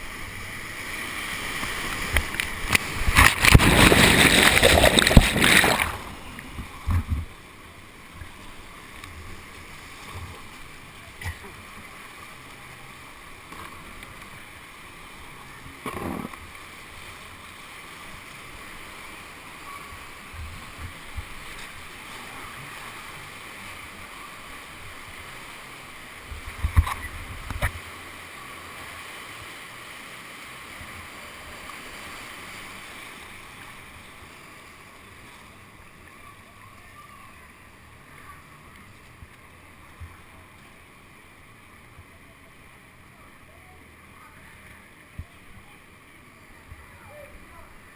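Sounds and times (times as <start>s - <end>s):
rushing whitewater: 0.0s - 47.9s
kayak knocks and splashes: 2.2s - 7.3s.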